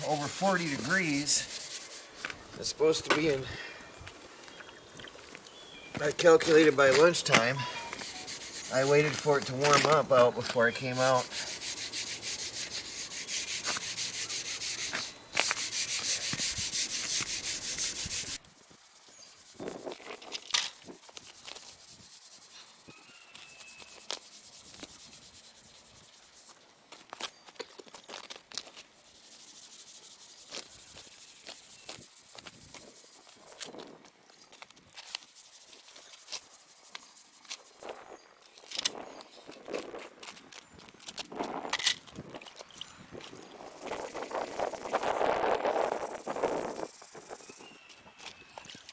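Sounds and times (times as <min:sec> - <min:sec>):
scrub pad scrubbing metal rails: 0:00.0 - 0:03.4, 0:06.0 - 0:18.4.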